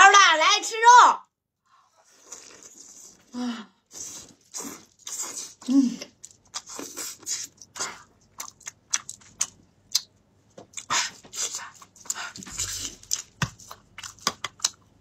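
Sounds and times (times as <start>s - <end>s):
wet chewing and lip-smacking: 3.9s - 15.0s.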